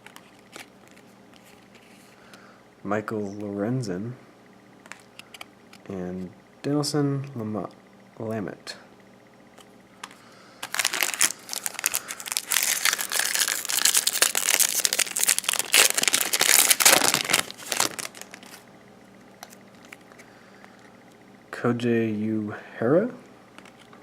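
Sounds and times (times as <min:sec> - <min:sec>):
foil wrapper crinkling: 0:10.6 - 0:18.6.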